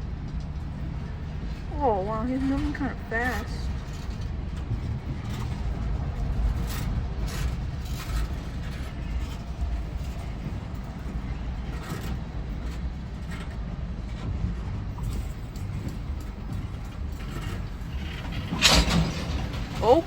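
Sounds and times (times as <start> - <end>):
rail cars rumbling: 0.0 - 20.0
faint clacks: 15.0 - 20.0.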